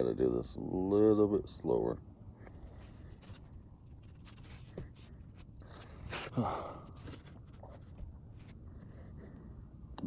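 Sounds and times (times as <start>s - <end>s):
fabric rustling and scratching: 2.7s - 8.6s.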